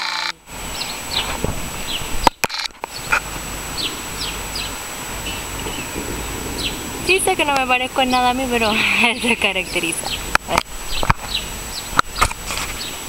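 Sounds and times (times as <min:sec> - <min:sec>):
low outdoor rumble: 0:00.3 - 0:13.0
small birds chirping: 0:00.6 - 0:13.0.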